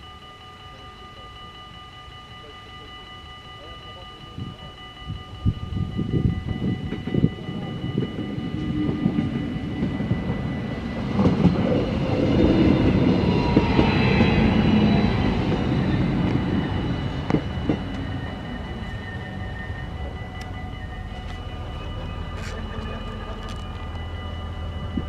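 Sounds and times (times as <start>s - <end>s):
crossing warning bells ringing: 0.0s - 25.0s
diesel engine droning: 5.7s - 25.0s
train wheels knocking over rails: 17.2s - 18.0s.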